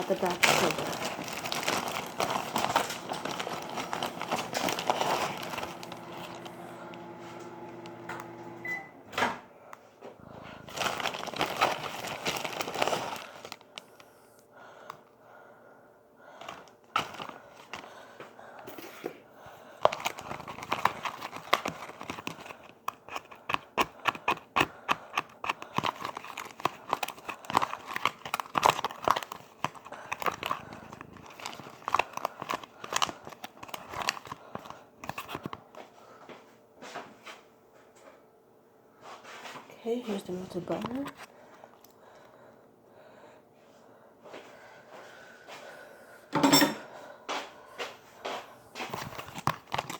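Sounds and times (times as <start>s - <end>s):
packaging crinkling and rustling: 0.0s - 8.6s, 10.5s - 14.2s, 16.4s - 35.8s, 39.4s - 41.9s, 48.4s - 49.9s.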